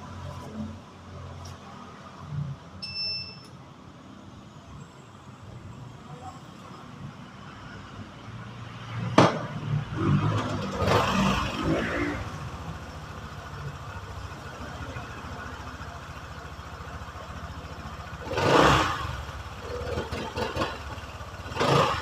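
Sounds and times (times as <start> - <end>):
short electronic beep: 2.8 - 3.6
motorcycle engine idling and revving: 3.9 - 22.0.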